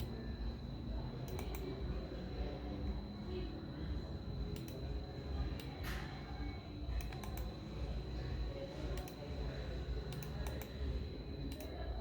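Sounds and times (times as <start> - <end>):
keyboard keystrokes clicking: 1.3 - 1.7, 10.1 - 10.8.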